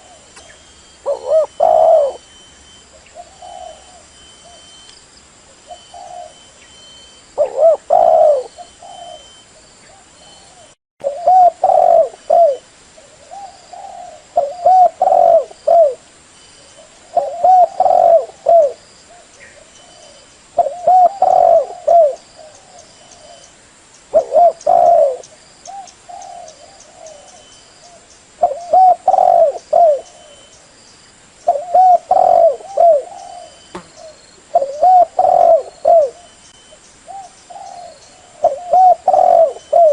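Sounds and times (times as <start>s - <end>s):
dove cooing: 0.0s - 4.7s, 5.6s - 6.6s, 7.4s - 16.0s, 16.7s - 23.5s, 24.1s - 30.6s, 31.5s - 36.4s, 37.1s - 39.9s
faint steady high tone: 0.0s - 12.7s.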